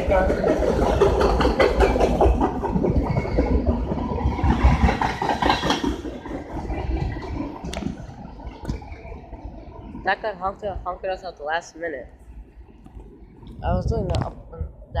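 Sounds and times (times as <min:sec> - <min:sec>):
wheels clicking and clattering: 0:00.0 - 0:10.1
train rumble: 0:00.0 - 0:15.0.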